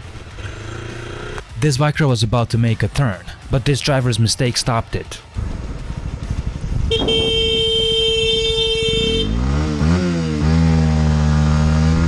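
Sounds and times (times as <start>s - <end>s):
motorcycle engine revving: 0.0s - 1.6s, 6.9s - 12.0s
vehicle horn: 6.9s - 9.6s.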